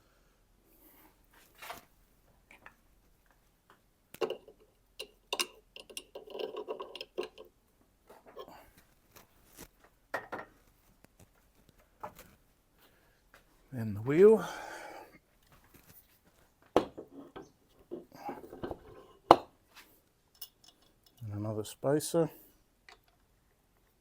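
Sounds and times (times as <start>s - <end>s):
metal washers clicking and scraping: 4.2s - 7.5s, 20.3s - 21.4s.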